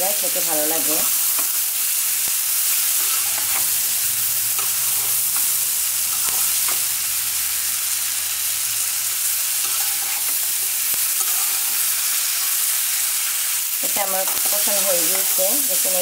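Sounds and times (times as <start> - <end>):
food sizzling in oil: 0.0 - 16.0
spatula scraping and tapping pan: 9.6 - 12.5.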